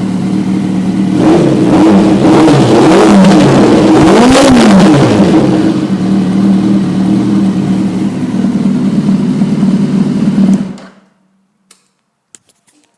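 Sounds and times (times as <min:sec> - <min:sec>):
motorcycle engine idling: 0:00.0 - 0:01.2, 0:05.6 - 0:10.8.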